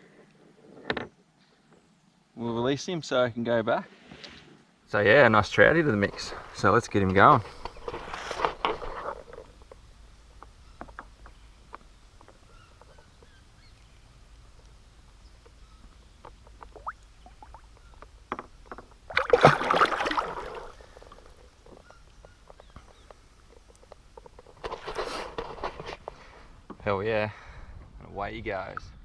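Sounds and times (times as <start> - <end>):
water splashing and sloshing: 15.4 - 26.3
loud splash: 19.1 - 20.7.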